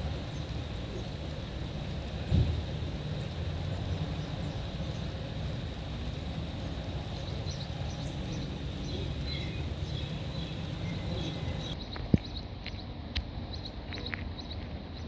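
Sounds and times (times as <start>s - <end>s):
high hiss: 0.0s - 11.8s
low outdoor rumble: 0.0s - 15.0s
small birds chirping: 0.0s - 15.0s.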